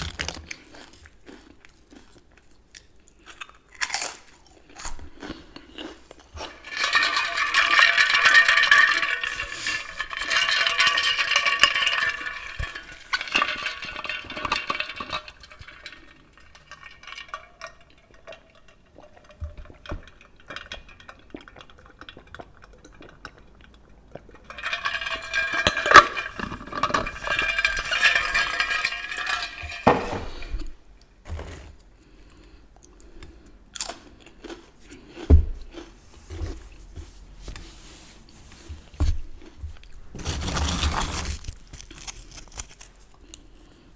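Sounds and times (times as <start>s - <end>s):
dishes and utensils clinking: 6.4s - 17.9s, 24.5s - 30.6s.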